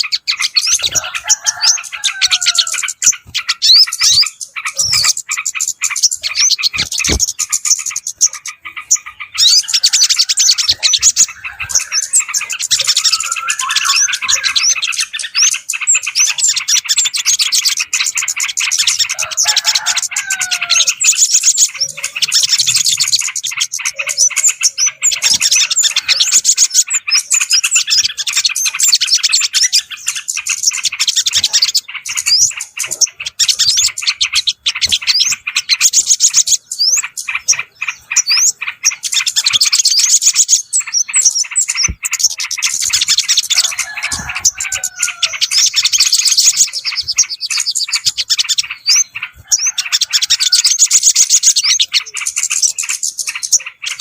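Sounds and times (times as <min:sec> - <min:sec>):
songbirds chattering and twittering: 0:00.0 - 0:54.0
low whistled bird phrase: 0:12.9 - 0:14.7.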